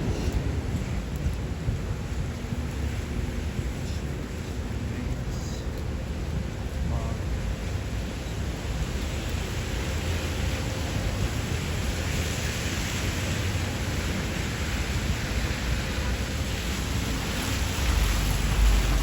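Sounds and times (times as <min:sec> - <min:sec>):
heavy rain falling: 0:00.0 - 0:19.0
low rumble: 0:15.5 - 0:19.0.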